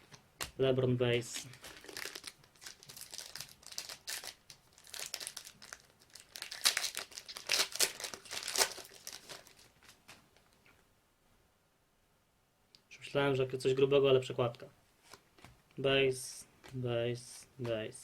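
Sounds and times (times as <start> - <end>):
foil wrapper crinkling and tearing: 1.4 - 10.1.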